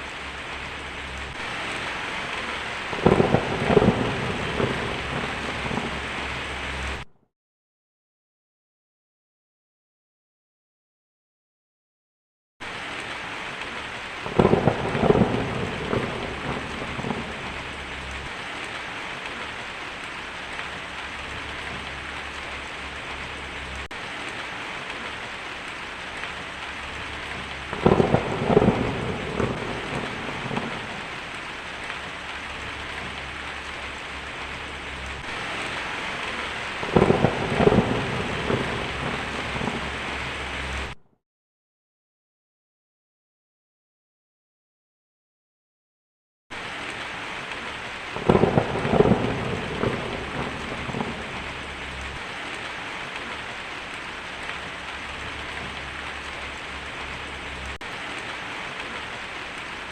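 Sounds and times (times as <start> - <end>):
heavy rain on a tin roof: 0.0 - 7.1, 12.6 - 41.0, 46.5 - 59.9
thunder rumbling: 0.0 - 7.1, 14.0 - 41.0, 48.1 - 59.2.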